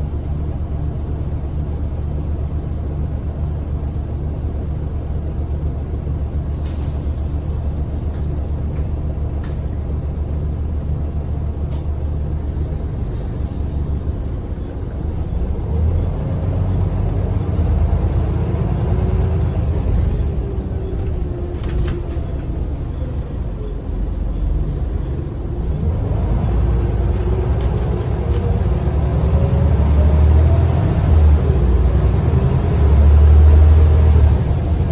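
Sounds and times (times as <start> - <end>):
diesel bus engine: 0.0 - 34.9.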